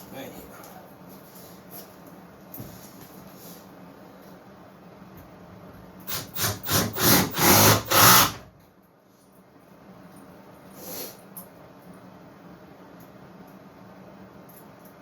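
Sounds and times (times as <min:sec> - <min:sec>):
impact driver driving screw: 0:06.1 - 0:08.4.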